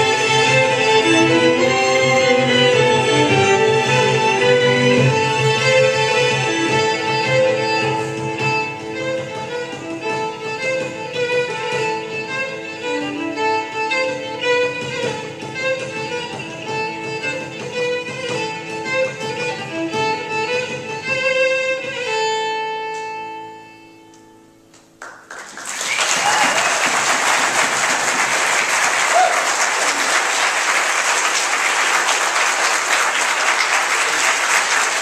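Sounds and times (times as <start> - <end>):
fiddle and string ensemble: 0.0 - 24.1
audience applause: 25.0 - 35.0.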